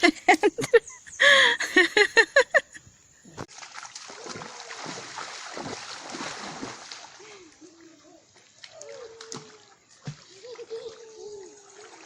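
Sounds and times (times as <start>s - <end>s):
river water splashing: 3.4s - 12.0s.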